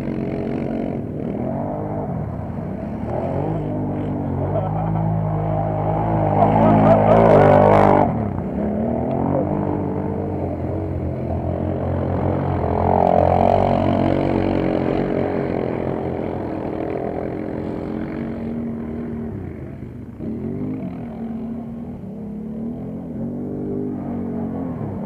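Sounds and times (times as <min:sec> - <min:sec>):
quad bike engines racing: 0:00.0 - 0:25.0.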